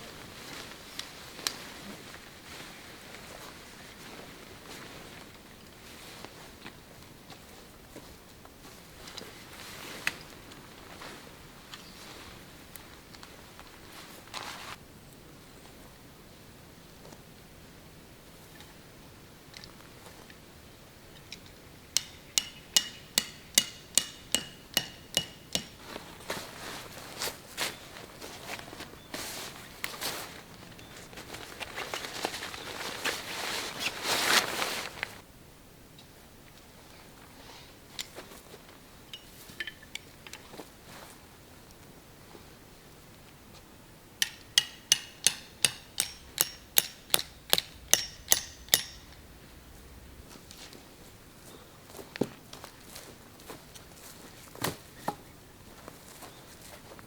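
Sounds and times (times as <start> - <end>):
hammer striking metal: 22.0 - 25.8, 44.2 - 49.3.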